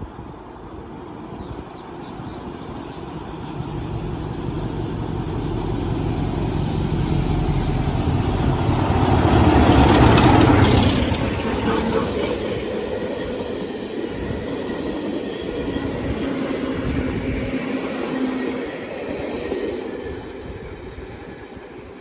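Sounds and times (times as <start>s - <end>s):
train passing: 0.0s - 22.0s.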